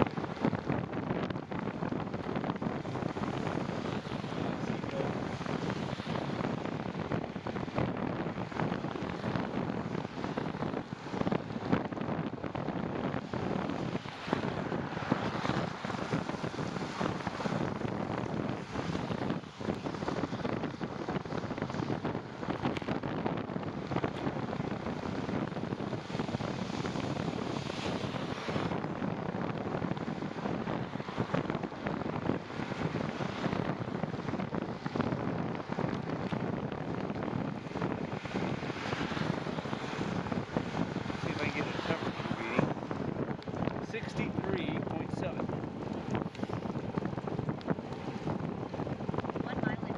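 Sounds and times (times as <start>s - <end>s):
wind rush on microphone: 0.0s - 49.9s
tyres hissing on wet road: 13.7s - 17.7s, 25.2s - 28.8s, 37.8s - 45.4s.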